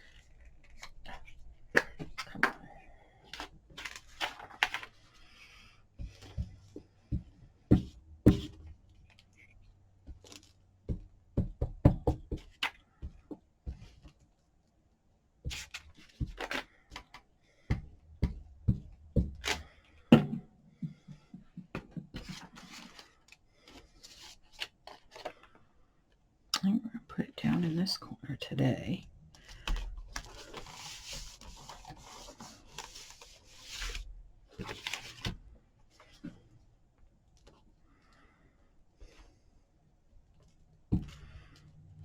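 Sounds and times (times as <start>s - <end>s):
tools and paper knocking on table: 6.0s - 8.7s, 10.8s - 14.1s, 15.5s - 22.8s.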